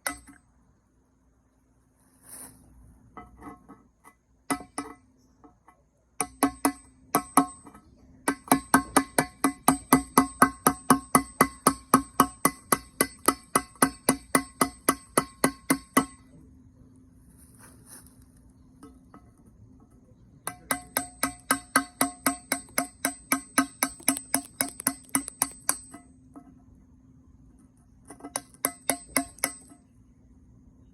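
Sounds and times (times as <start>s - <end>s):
ringing blows on kiln shelf: 6.2s - 16.4s, 18.8s - 26.6s, 28.2s - 29.9s.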